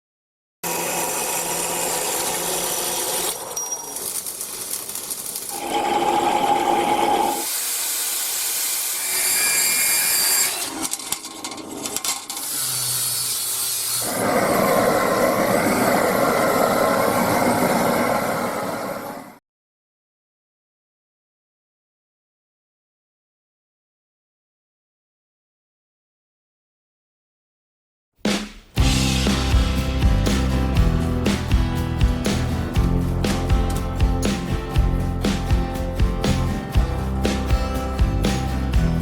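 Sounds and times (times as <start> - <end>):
power tools working metal: 0.6 - 19.2.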